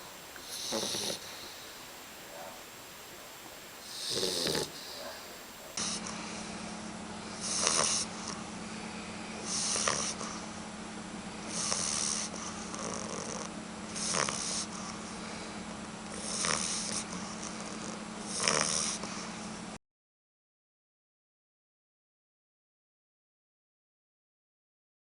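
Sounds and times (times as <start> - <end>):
puppy snoring: 0.0 - 6.5, 7.2 - 10.6, 11.4 - 19.6
steady low hum: 0.0 - 19.8.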